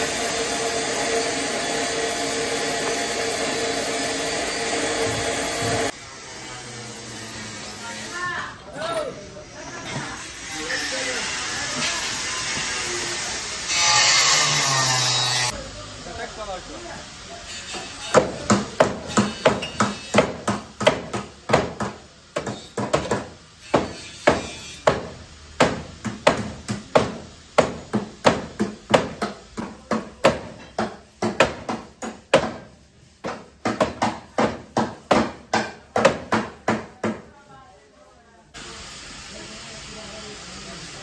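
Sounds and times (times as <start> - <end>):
hammer on sheet metal: 18.1 - 37.3.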